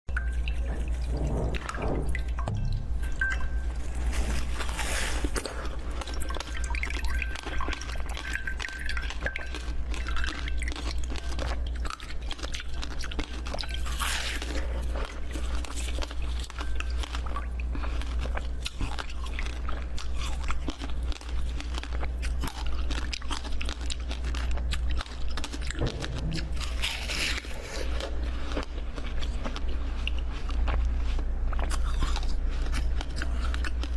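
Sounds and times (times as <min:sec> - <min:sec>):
steady low hum: 0:00.1 - 0:33.9
crunchy bites and chewing: 0:09.0 - 0:33.9.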